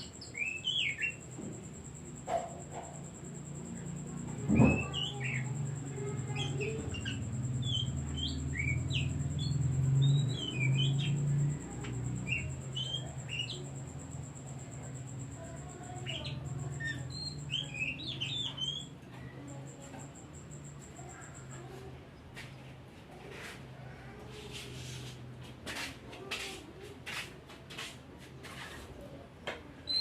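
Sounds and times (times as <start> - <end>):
bird singing chirps and whistles: 6.3 - 11.3, 12.2 - 13.6, 16.0 - 18.9.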